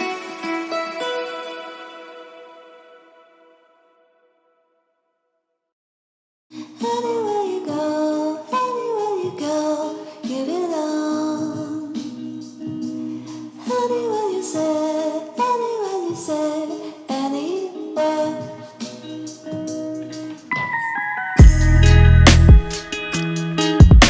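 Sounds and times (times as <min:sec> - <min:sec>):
song with sung melody: 0:06.6 - 0:23.8.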